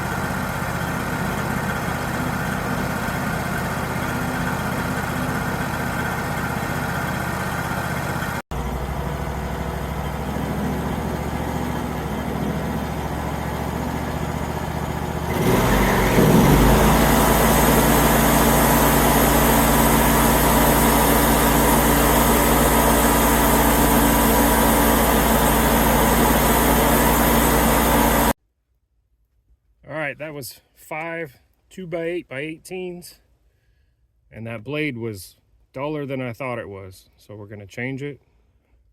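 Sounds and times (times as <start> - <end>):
bandsaw mill running: 0.0 - 28.4.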